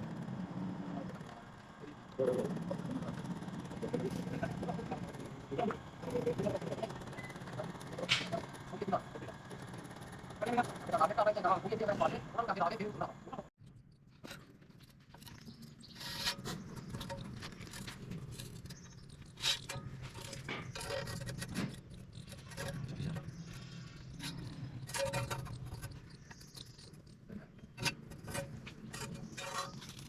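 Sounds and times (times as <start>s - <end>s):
metal parts clinking and scraping: 14.1s - 30.0s.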